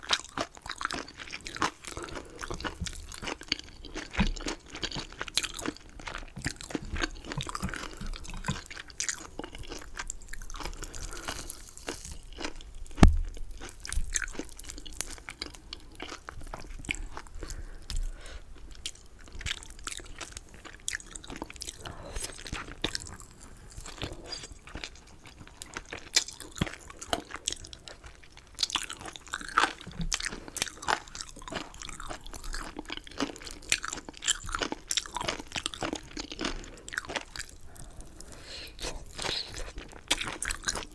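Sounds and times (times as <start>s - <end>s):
crunchy chewing of chicken: 0.0s - 40.9s
sharp thump: 13.0s - 13.4s.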